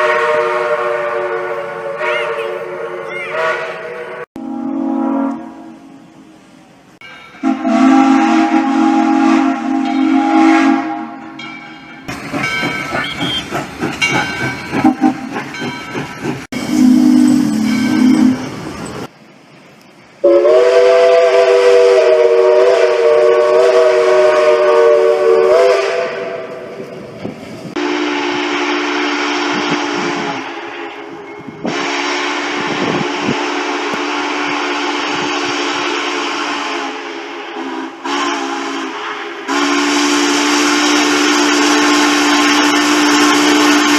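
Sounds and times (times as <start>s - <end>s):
steam locomotive whistle: 0.0s - 6.1s, 7.4s - 11.4s, 12.8s - 14.2s, 14.8s - 15.6s, 16.5s - 18.6s, 20.2s - 26.9s, 27.7s - 43.9s
train noise: 0.0s - 43.9s
steam hissing: 11.8s - 43.9s.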